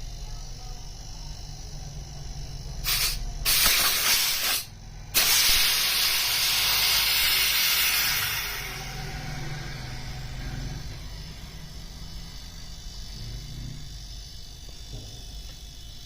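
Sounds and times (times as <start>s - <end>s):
steady low hum: 0.0s - 16.0s
spray hissing: 2.8s - 8.9s.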